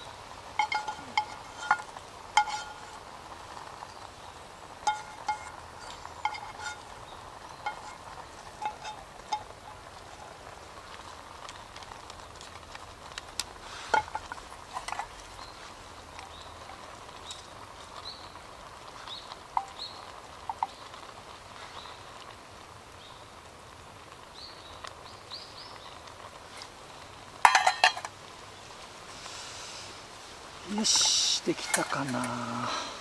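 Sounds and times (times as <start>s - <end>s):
birds chirping: 0.0s - 10.5s, 13.4s - 22.3s, 30.5s - 33.0s.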